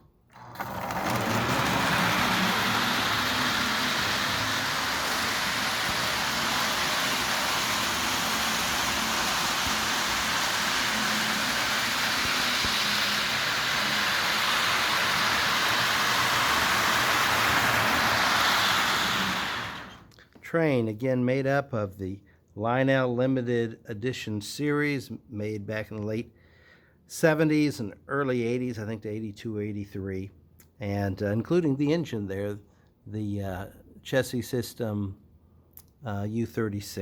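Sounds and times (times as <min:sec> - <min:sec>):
faint motor hum: 0:00.4 - 0:20.1
metal wheels rolling on rails: 0:00.4 - 0:20.1.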